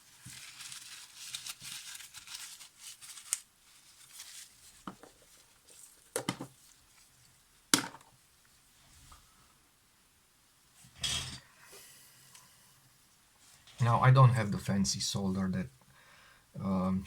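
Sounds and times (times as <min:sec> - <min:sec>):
rustling and crinkling: 0:00.0 - 0:09.3.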